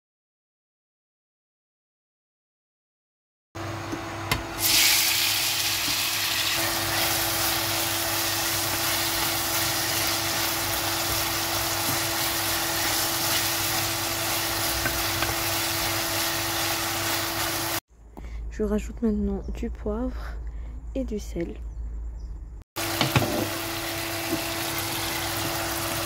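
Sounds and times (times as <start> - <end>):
vegetables sizzling in frying pan: 4.6 - 17.8, 22.8 - 26.0
wooden spoon stirring: 6.6 - 17.2.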